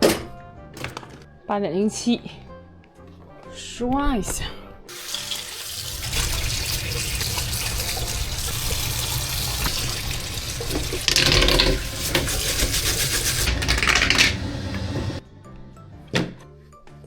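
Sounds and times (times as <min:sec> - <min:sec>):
tap water running into sink: 0:04.9 - 0:15.2.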